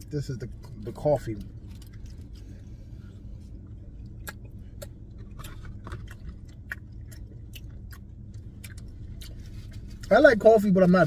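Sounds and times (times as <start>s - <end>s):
low steady hum: 0.0s - 11.0s
person chewing: 1.3s - 10.1s.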